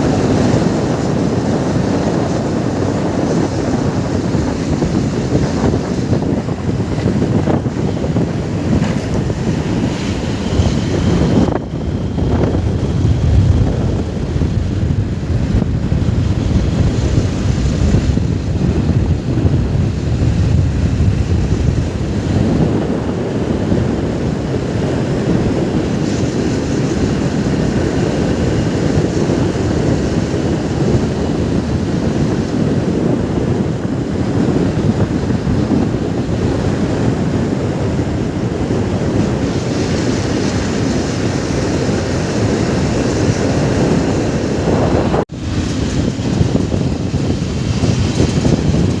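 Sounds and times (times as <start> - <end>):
motorcycle low rumble: 0.0 - 49.0
wind rushing over microphone: 0.0 - 49.0.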